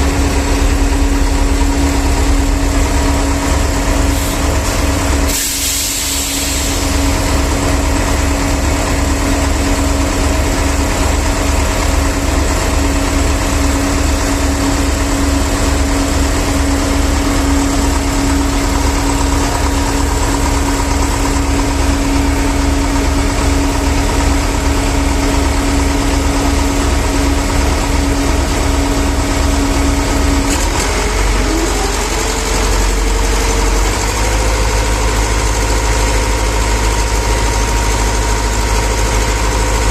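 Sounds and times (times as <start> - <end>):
truck diesel engine idling: 0.0 - 39.9.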